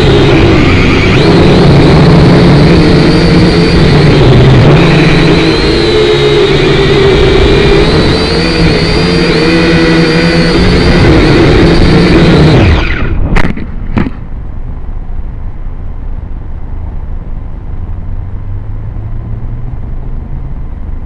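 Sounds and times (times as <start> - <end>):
drone motors whining: 0.0 - 14.3
wind rumble on microphone: 0.0 - 21.0.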